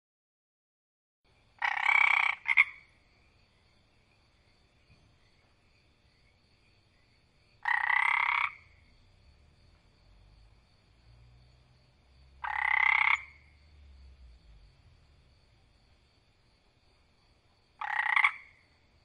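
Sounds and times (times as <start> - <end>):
frog croaking: 1.6 - 3.0, 7.6 - 9.2, 11.4 - 15.4, 17.7 - 19.0.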